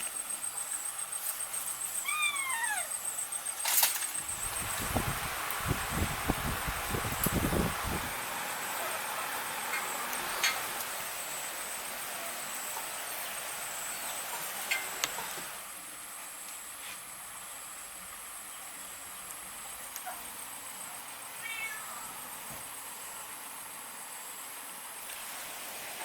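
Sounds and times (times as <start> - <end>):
cat-like animal call: 2.0 - 3.0.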